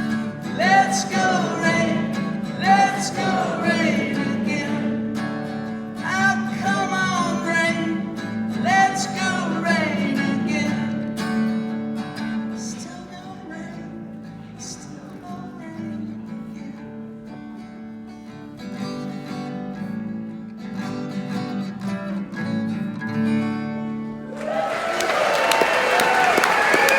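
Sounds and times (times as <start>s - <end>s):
person singing wordlessly: 0.0s - 5.4s, 6.0s - 11.1s, 12.5s - 16.8s
guitar playing: 0.0s - 24.3s
audience applauding: 24.3s - 26.9s.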